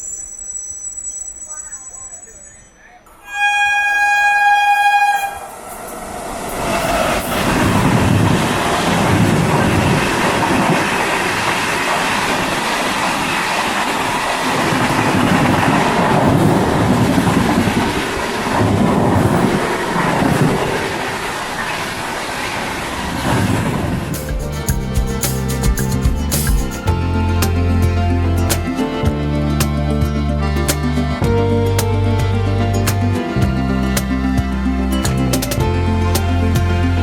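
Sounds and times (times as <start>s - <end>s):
train horn blast: 3.2s - 5.6s
train rumble: 3.3s - 27.0s
wheels clickety-clack on rails: 4.7s - 26.9s.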